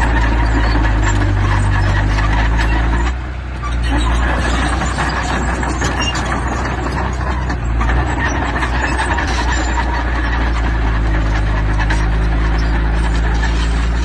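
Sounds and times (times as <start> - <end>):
diesel engine droning: 0.0 - 14.0.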